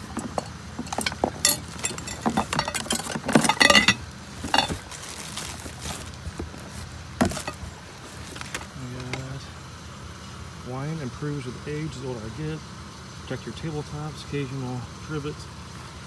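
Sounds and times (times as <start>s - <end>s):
steady low hum: 0.0s - 4.9s
small objects clinking and rattling: 0.0s - 9.3s.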